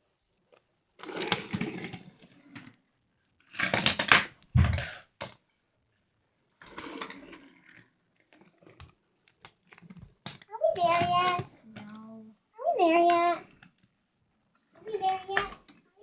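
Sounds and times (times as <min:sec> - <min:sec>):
plastic toys clattering: 0:01.0 - 0:02.8, 0:03.4 - 0:05.4, 0:06.6 - 0:12.0, 0:14.9 - 0:15.9
heavy thump: 0:04.5 - 0:05.0.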